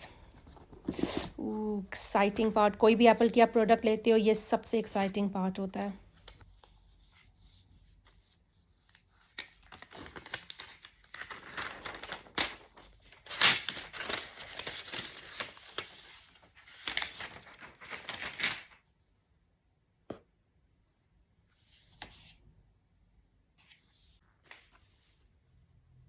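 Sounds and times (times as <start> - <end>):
paper and plastic tearing: 9.3 - 16.0.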